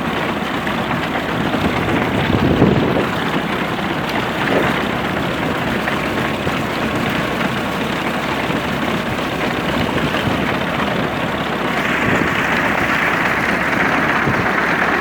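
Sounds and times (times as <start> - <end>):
tractor engine running: 0.0 - 15.0
hissing rustling machinery: 11.6 - 15.0.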